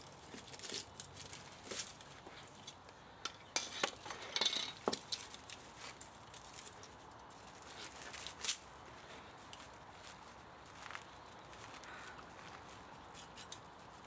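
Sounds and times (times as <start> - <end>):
metal parts and tools clinking: 0.1 - 8.6, 13.1 - 13.9.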